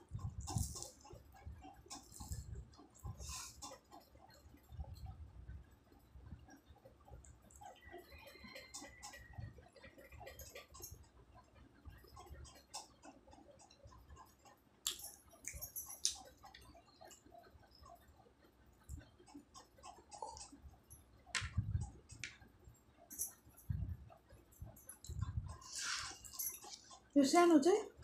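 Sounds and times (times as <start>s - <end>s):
person chewing food: 0.1s - 4.3s, 12.1s - 17.2s, 19.1s - 20.7s.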